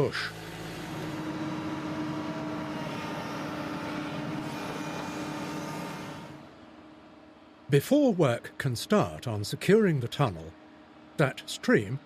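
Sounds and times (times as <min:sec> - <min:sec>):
motor running steadily: 0:00.0 - 0:07.6.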